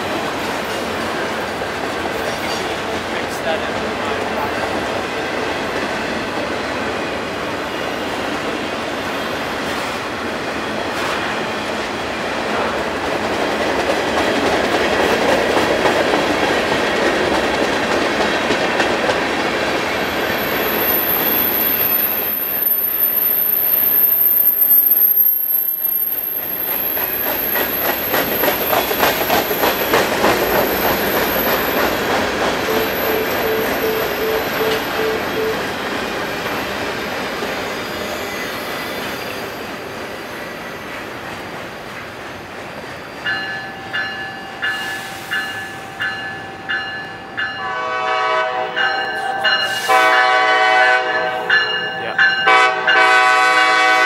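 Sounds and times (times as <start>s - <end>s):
train wheels clicking over rail joints: 12.5s - 22.7s, 25.2s - 37.8s
high wheel squeal: 20.0s - 28.9s, 32.6s - 41.0s.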